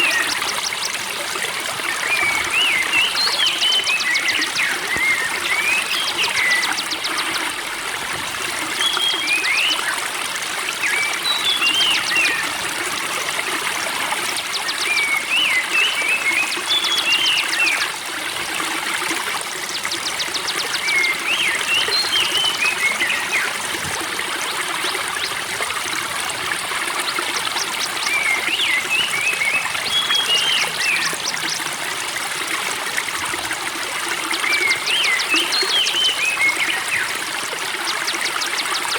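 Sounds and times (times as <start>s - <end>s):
spring water trickling: 0.0s - 38.9s
songbird twittering: 27.5s - 31.6s.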